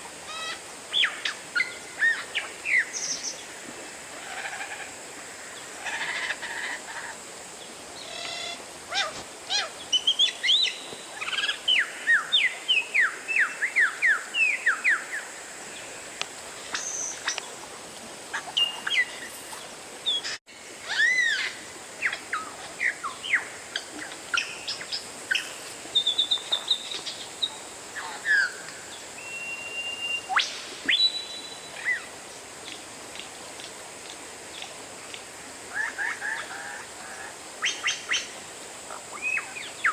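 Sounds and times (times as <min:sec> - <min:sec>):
background hiss: 0:00.0 - 0:39.9
bird singing whistles: 0:29.2 - 0:31.7.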